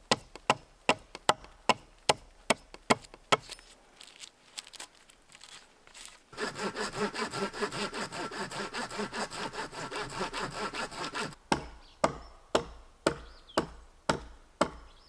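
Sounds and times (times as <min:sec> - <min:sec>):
handling sounds: 0:03.4 - 0:06.3.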